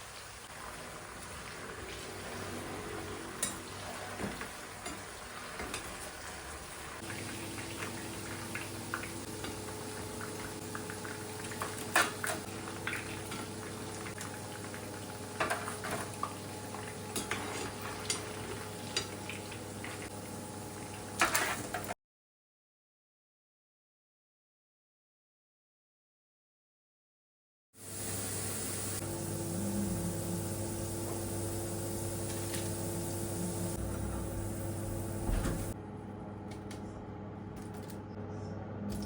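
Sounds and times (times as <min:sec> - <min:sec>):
food bubbling and sizzling: 0:00.0 - 0:21.9, 0:27.8 - 0:35.8
utensils and dishes clinking: 0:17.1 - 0:19.2
steady hum: 0:28.4 - 0:39.0.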